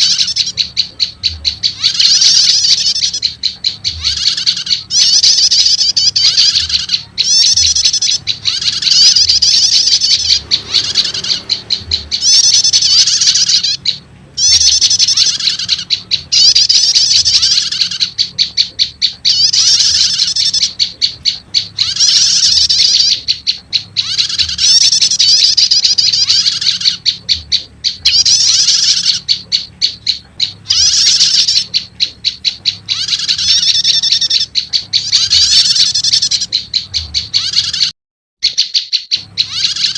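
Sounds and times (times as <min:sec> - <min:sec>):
bird chattering trills: 0:00.0 - 0:39.9.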